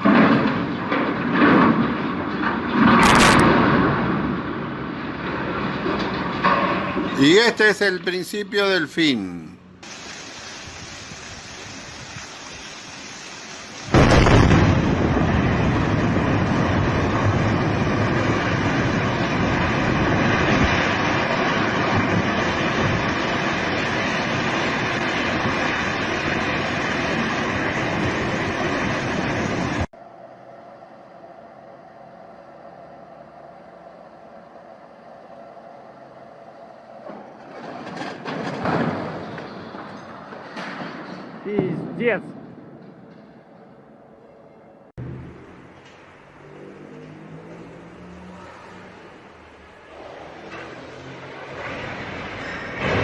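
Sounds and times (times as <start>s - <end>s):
rumbling clatter with heavy knocks: 0.0s - 7.2s, 13.9s - 29.9s, 37.0s - 43.8s, 49.8s - 53.0s
loud rumble: 13.9s - 30.5s.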